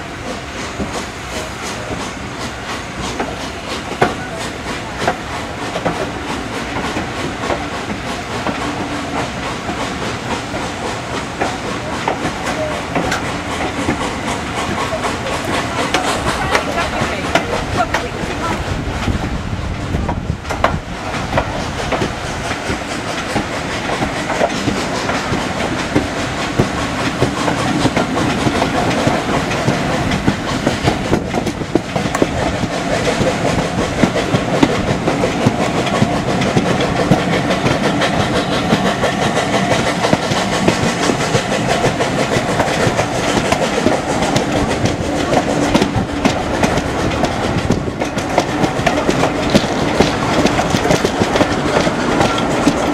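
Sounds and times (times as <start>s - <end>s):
train wheels clattering on rails: 0.0s - 52.9s.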